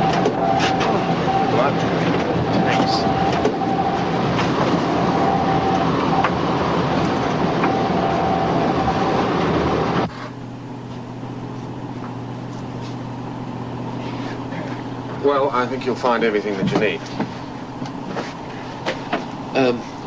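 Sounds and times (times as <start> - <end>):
boat engines running: 0.0 - 20.0
low hum: 0.0 - 20.0.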